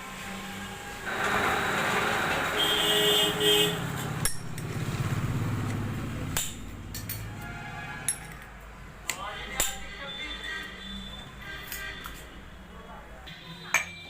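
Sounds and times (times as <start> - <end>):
metal engine parts clinking: 8.1 - 8.5.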